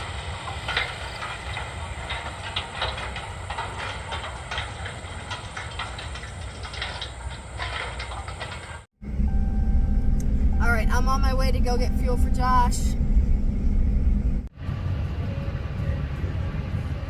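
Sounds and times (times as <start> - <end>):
rattling and clatter: 0.0 - 9.0
farm vehicle engine rumbling: 0.0 - 17.0.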